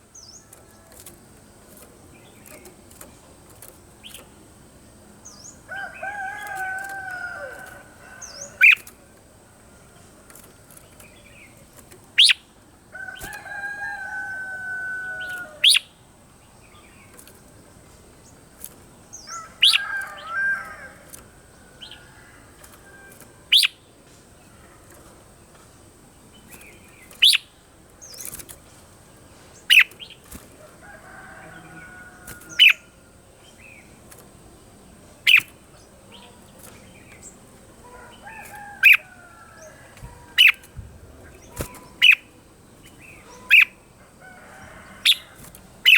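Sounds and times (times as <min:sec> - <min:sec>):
bird calling: 0:05.2 - 0:09.1, 0:09.8 - 0:16.0, 0:19.1 - 0:23.9, 0:26.4 - 0:28.6, 0:29.3 - 0:33.9, 0:35.2 - 0:45.9.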